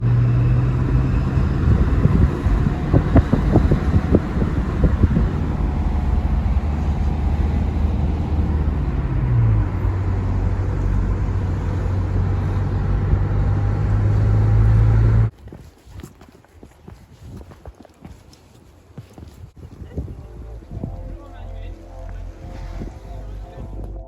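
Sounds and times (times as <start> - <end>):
car engine humming: 0.0 - 15.3, 20.2 - 24.0.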